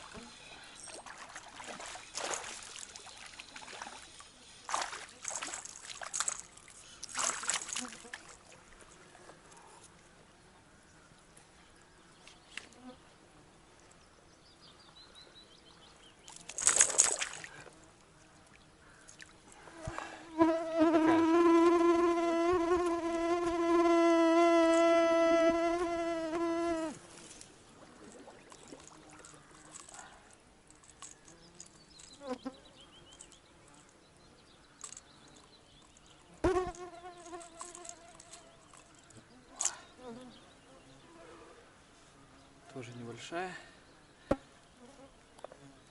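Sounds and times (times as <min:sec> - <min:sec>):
flying insect buzzing: 0:19.6 - 0:27.4, 0:36.4 - 0:41.2.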